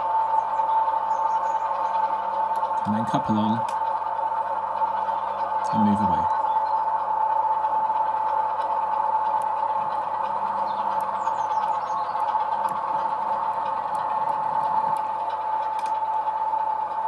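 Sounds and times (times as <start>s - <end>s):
model train motor whirring: 1.7s - 17.0s
faint ticks: 8.5s - 16.2s.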